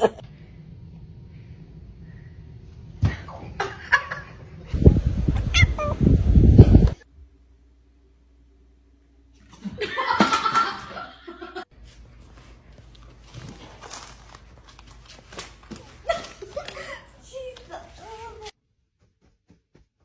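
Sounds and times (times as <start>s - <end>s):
person laughing: 0.0s - 0.2s, 16.0s - 17.2s.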